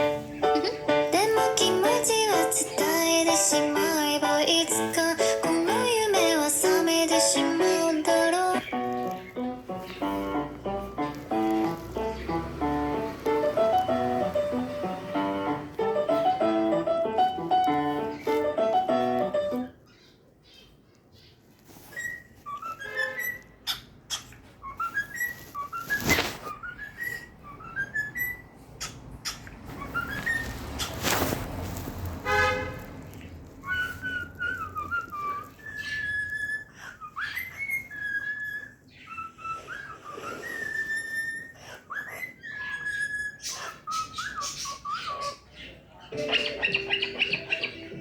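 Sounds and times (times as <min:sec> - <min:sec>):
cockatiel whistling: 0:21.8 - 0:23.9, 0:24.6 - 0:31.2, 0:33.5 - 0:45.4, 0:46.1 - 0:48.0.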